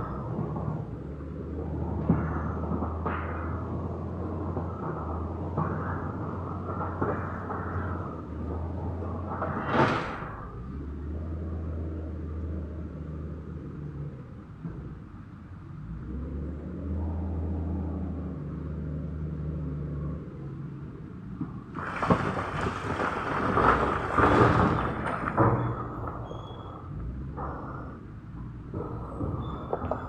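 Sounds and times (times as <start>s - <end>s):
rough clatter and knocks: 1.8s - 10.6s, 21.3s - 30.0s
heavy machine engine running: 20.8s - 30.0s.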